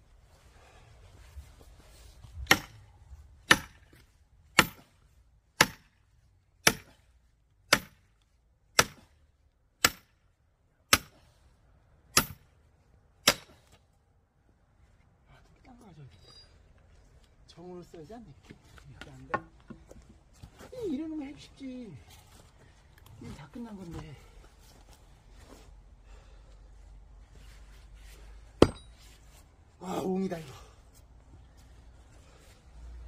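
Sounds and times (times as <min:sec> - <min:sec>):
axe blows splitting firewood: 0:02.4 - 0:02.8, 0:04.6 - 0:04.9, 0:06.6 - 0:07.0, 0:07.7 - 0:08.0, 0:08.8 - 0:09.1, 0:13.2 - 0:13.7.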